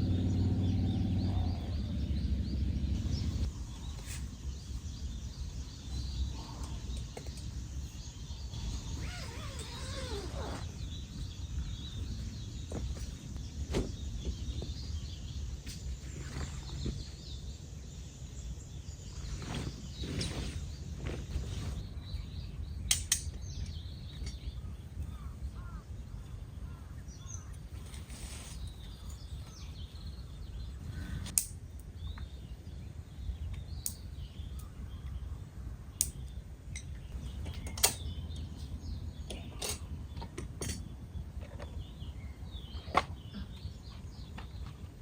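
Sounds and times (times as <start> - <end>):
low steady rumble: 0.0 - 9.0.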